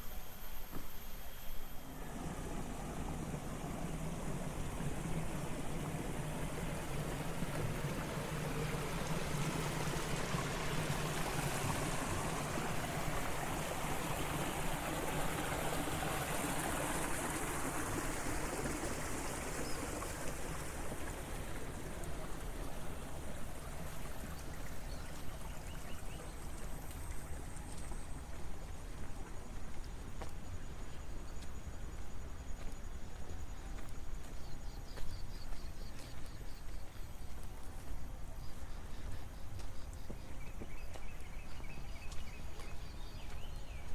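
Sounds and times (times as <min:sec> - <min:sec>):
low hum: 0:00.0 - 0:33.7
water rushing along a channel: 0:01.6 - 0:34.4.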